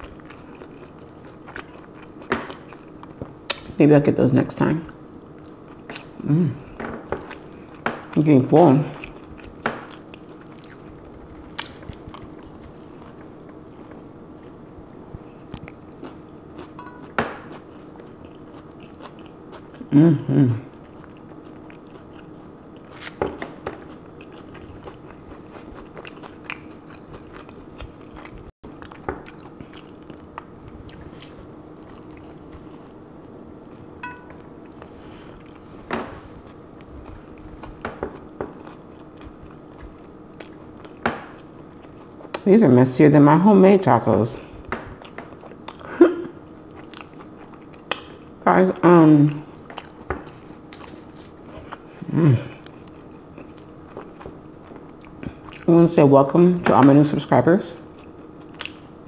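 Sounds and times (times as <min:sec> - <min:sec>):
person chewing a taco: 0:00.0 - 0:03.8, 0:04.9 - 0:08.2, 0:08.8 - 0:42.4, 0:44.4 - 0:48.4, 0:49.2 - 0:55.7, 0:57.8 - 0:59.0
wet mouth clicks and smacks: 0:03.5 - 0:03.8.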